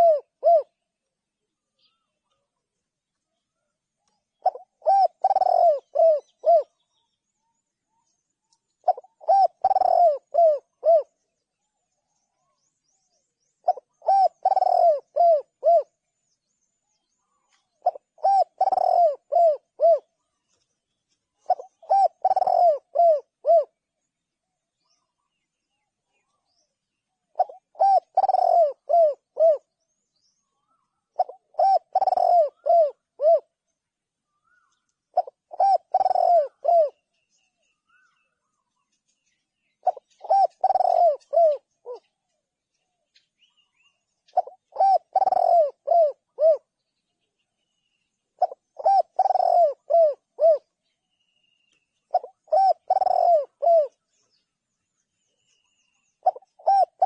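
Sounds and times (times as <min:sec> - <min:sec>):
dove cooing: 0:00.0 - 0:00.8, 0:04.3 - 0:07.0, 0:08.8 - 0:11.3, 0:13.6 - 0:16.0, 0:17.2 - 0:20.5, 0:21.4 - 0:23.8, 0:27.3 - 0:29.8, 0:30.6 - 0:33.6, 0:34.4 - 0:38.6, 0:39.7 - 0:42.2, 0:43.2 - 0:46.7, 0:48.4 - 0:50.9, 0:52.0 - 0:54.1, 0:55.8 - 0:57.0.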